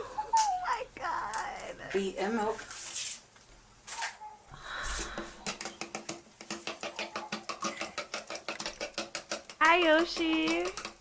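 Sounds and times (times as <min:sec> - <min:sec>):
whisk clicking against bowl: 0:05.4 - 0:11.0.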